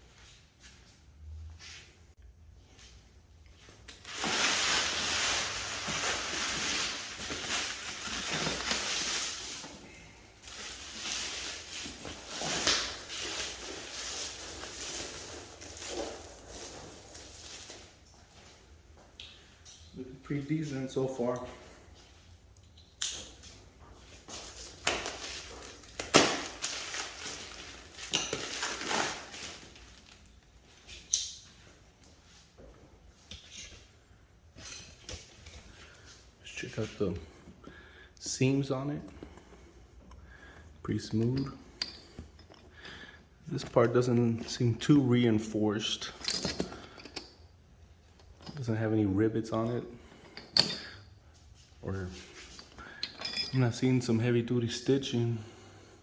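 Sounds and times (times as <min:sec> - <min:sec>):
packaging rustling and scraping: 0:03.8 - 0:09.8, 0:24.4 - 0:30.4.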